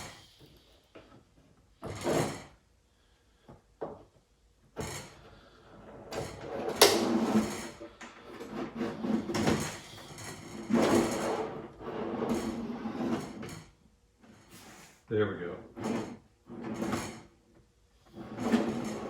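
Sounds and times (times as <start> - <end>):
drawer sliding on runners: 4.8 - 13.7, 15.6 - 17.3, 18.1 - 19.0.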